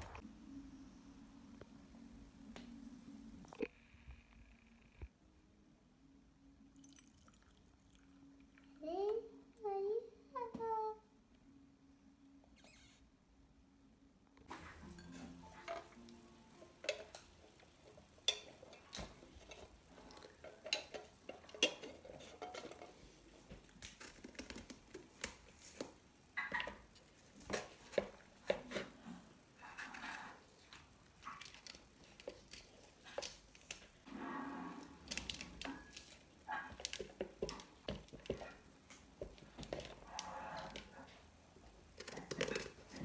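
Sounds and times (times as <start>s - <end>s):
dishes and utensils clinking: 14.5s - 23.6s, 26.4s - 26.9s.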